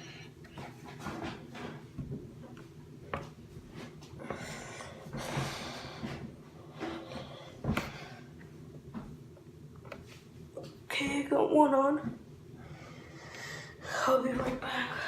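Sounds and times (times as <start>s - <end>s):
person breathing hard: 4.2s - 8.4s, 12.6s - 14.2s.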